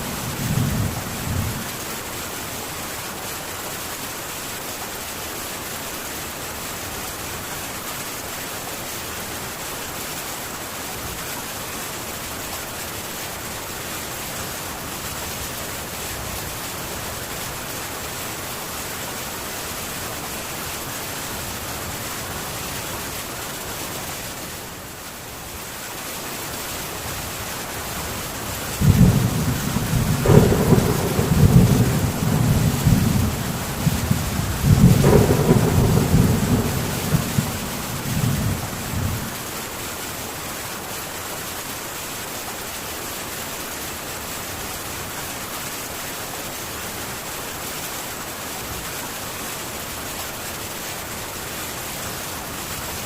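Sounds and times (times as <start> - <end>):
heavy rain on tin roof: 0.0 - 53.0
rolling thunder: 28.7 - 39.5.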